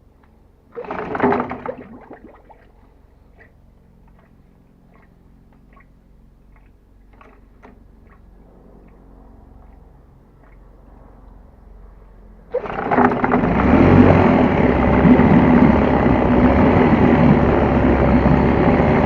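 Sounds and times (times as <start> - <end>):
low hum: 0.0 - 19.0
outboard motor pull-start: 0.7 - 5.9, 6.5 - 8.3, 12.5 - 19.0.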